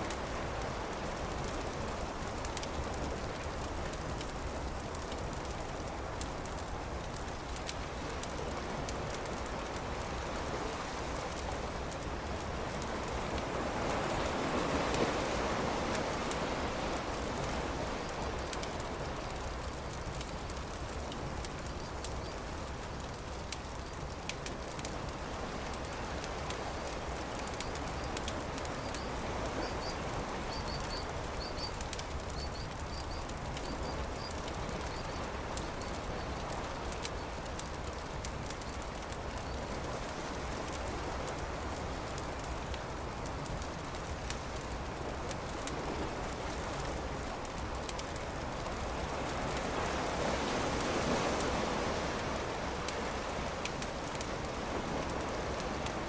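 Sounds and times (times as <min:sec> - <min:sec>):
campfire crackling and popping: 0:00.0 - 0:56.0
surf washing: 0:00.0 - 0:56.0
faint bird chirps: 0:28.8 - 0:36.3.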